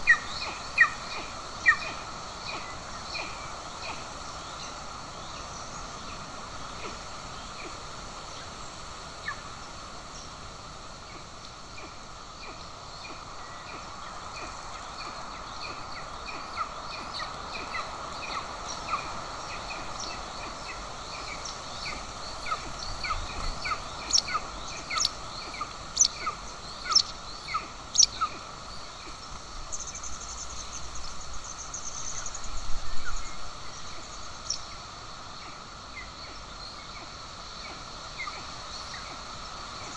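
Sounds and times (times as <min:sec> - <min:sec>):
outdoor hiss: 0:00.0 - 0:39.9
sharp falling bird calls: 0:11.8 - 0:30.6.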